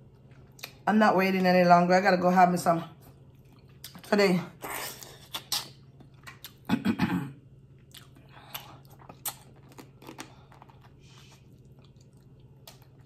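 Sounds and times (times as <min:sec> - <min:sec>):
person chewing food: 0:00.0 - 0:00.8, 0:03.1 - 0:06.7, 0:07.7 - 0:13.0
wet mouth clicks: 0:05.2 - 0:06.6.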